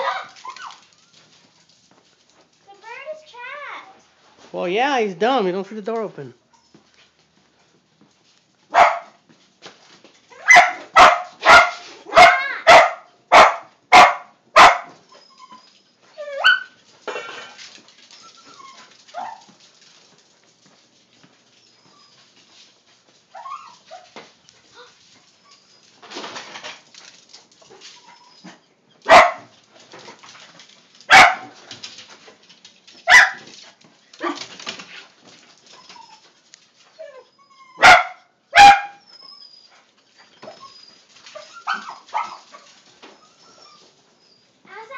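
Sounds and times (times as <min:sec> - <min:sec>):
dog yelping: 0:00.0 - 0:01.2, 0:10.3 - 0:16.8, 0:18.1 - 0:19.5, 0:23.3 - 0:24.2, 0:27.9 - 0:29.5, 0:31.1 - 0:31.6, 0:32.9 - 0:33.5, 0:37.0 - 0:44.9
dog barking: 0:08.7 - 0:09.2, 0:10.4 - 0:14.9, 0:29.1 - 0:29.5, 0:31.1 - 0:31.6, 0:33.1 - 0:33.4, 0:37.8 - 0:39.0
dog whimpering: 0:15.1 - 0:16.7, 0:18.1 - 0:18.9, 0:35.7 - 0:36.3, 0:37.0 - 0:37.9, 0:43.0 - 0:44.6.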